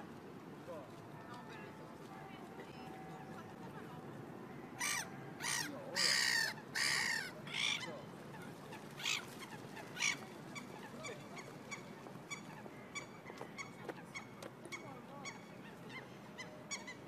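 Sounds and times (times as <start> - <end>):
harsh waterbird calls: 4.6 - 17.0.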